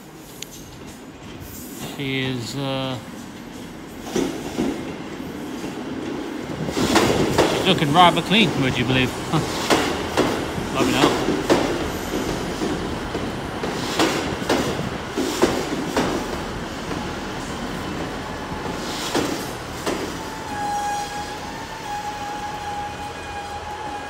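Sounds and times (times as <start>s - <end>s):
train wheels knocking over rail joints: 6.6s - 17.1s, 17.8s - 20.2s.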